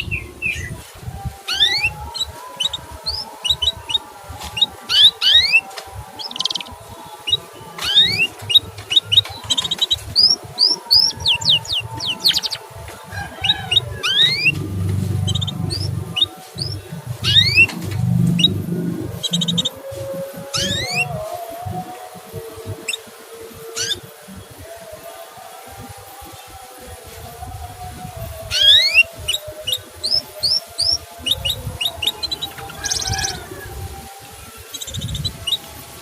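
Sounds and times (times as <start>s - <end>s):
canary chirping: 0.0s - 24.7s, 28.3s - 36.0s
low rumble: 13.2s - 21.9s.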